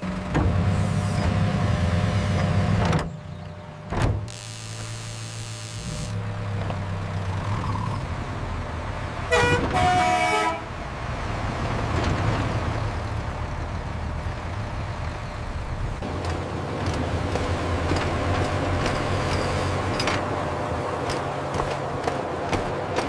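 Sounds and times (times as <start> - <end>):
truck engine running: 0.0 - 23.0
horn honking: 4.3 - 6.2, 9.3 - 10.8.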